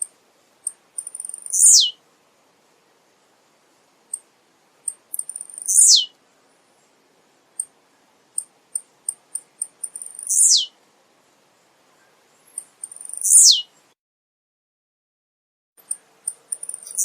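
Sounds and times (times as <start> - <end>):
bird ticks: 0.0 - 1.7, 4.1 - 5.8, 8.3 - 10.4, 12.5 - 13.4, 15.8 - 17.0.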